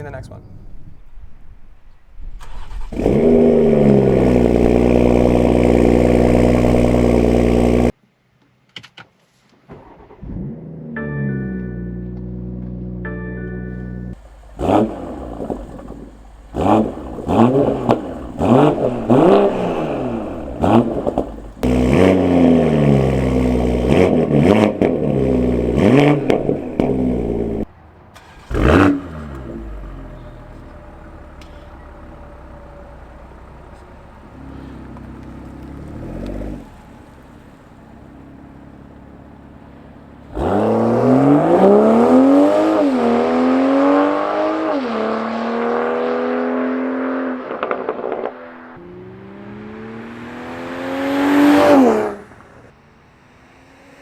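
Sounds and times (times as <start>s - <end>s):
car engine revving and accelerating: 2.4s - 8.0s, 14.1s - 27.7s, 28.3s - 31.5s, 34.2s - 54.0s.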